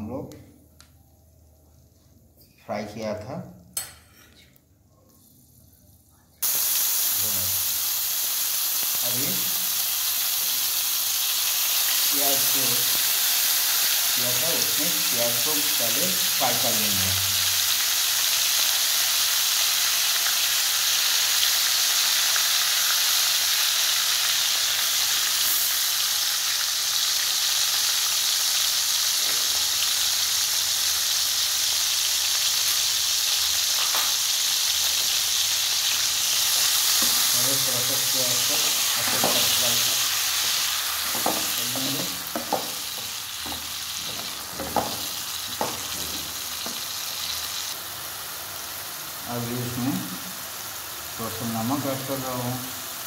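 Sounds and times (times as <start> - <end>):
food sizzling in hot oil: 6.4 - 53.0
spatula knocking against pan: 42.3 - 42.8.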